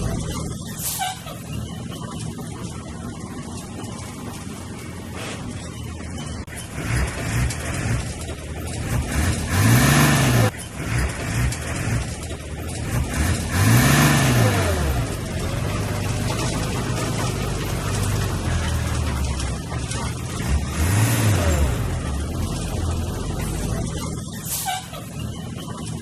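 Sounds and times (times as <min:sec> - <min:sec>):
heavy diesel engine revving: 0:00.0 - 0:03.4, 0:06.1 - 0:26.0.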